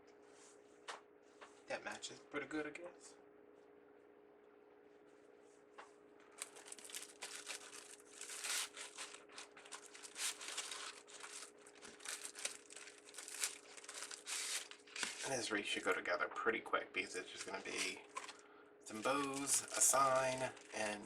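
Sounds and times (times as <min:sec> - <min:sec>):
faint steady hum: 0:00.0 - 0:21.0
ribbon crinkling and rustling: 0:06.2 - 0:16.0, 0:17.4 - 0:21.0.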